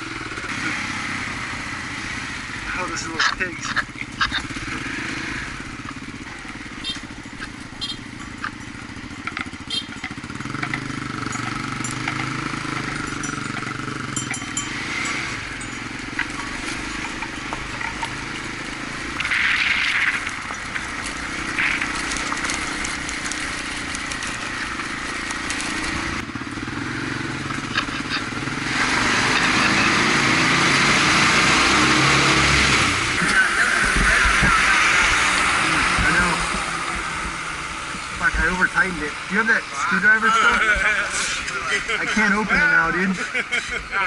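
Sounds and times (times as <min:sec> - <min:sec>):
motorcycle engine running: 0:00.0 - 0:43.0
road and wind noise: 0:00.0 - 0:44.0.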